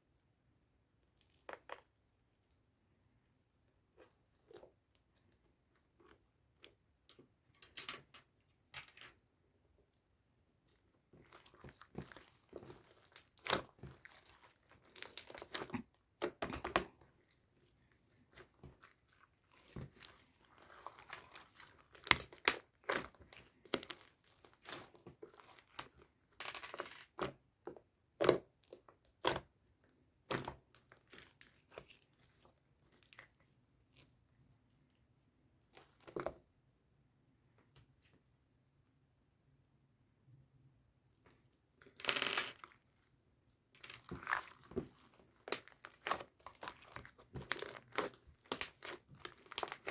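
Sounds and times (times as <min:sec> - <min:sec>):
slime crackling and snapping: 0:43.8 - 0:49.9.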